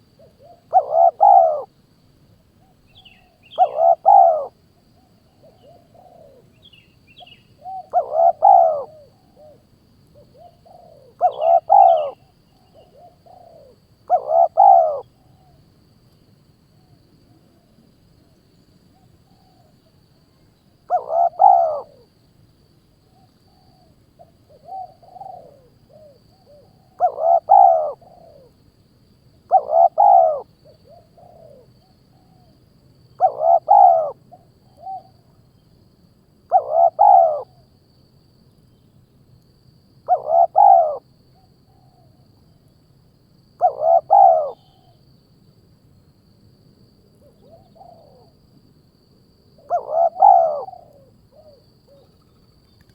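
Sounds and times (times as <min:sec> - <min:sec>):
bird calling: 0:00.0 - 0:01.7, 0:02.7 - 0:04.6, 0:05.4 - 0:09.6, 0:10.2 - 0:15.6, 0:20.9 - 0:22.1, 0:23.2 - 0:28.5, 0:29.5 - 0:32.5, 0:33.2 - 0:35.1, 0:36.5 - 0:37.6, 0:40.1 - 0:41.0, 0:43.6 - 0:45.0, 0:49.6 - 0:52.9.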